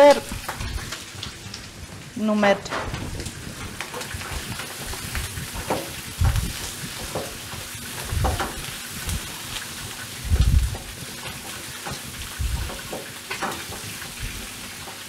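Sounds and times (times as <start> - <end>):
vegetables sizzling in a frying pan: 0.0 - 15.0
spatula knocking on pan: 2.7 - 8.7.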